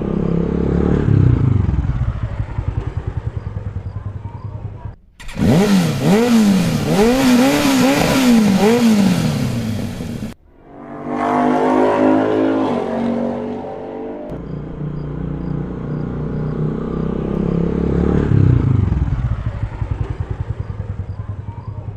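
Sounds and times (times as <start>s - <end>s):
engine running and revving: 0.0s - 21.9s
deep rumbling engine chugging: 14.3s - 21.9s.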